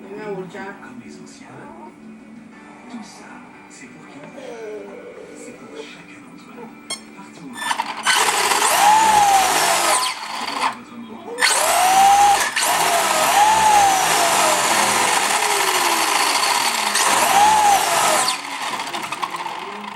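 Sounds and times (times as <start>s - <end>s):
electric motor whining: 7.6s - 10.8s, 11.4s - 19.9s.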